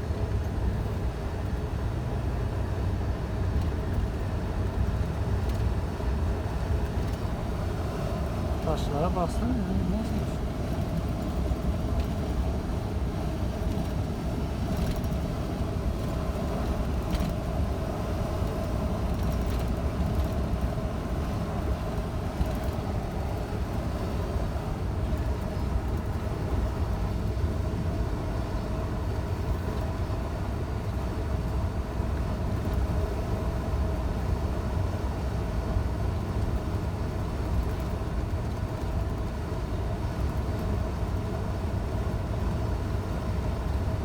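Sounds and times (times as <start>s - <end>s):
truck engine drone and road rumble: 0.0s - 44.0s
mid-pitched hum: 6.2s - 25.7s.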